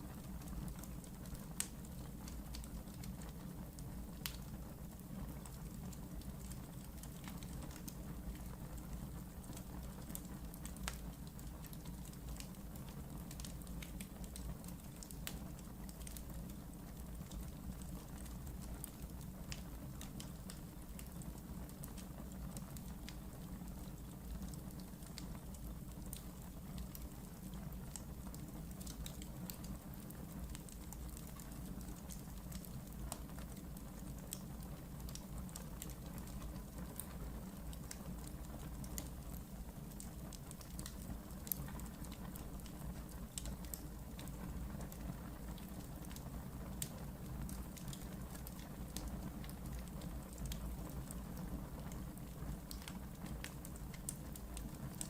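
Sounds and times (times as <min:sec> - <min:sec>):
fire rumbling in fireplace: 0:00.0 - 0:55.0
wood crackling and popping: 0:00.0 - 0:55.0.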